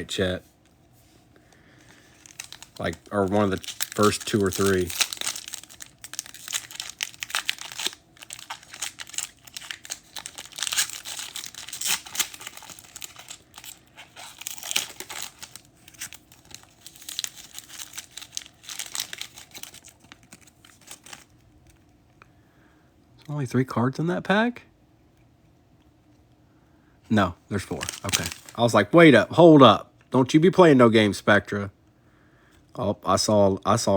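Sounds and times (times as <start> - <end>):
plastic wrapper crinkling and tearing: 1.8 - 21.9, 27.6 - 28.8.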